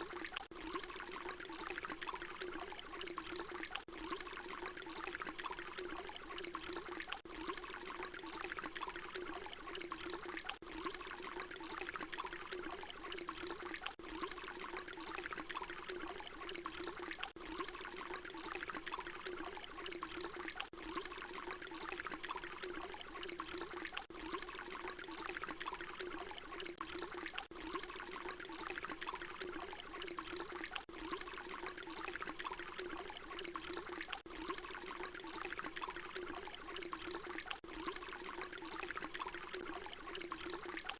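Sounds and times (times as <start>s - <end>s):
water pouring: 0.0s - 40.9s.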